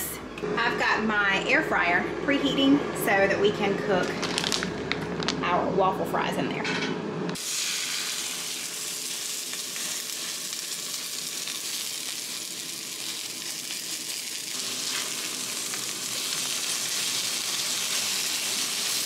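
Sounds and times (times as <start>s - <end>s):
patties sizzling in a skillet: 7.4s - 19.0s.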